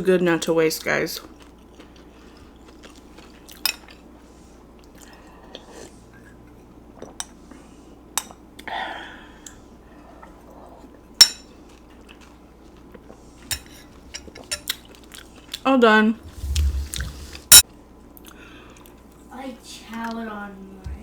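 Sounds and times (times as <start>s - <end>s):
person slurping broth: 16.2s - 17.6s.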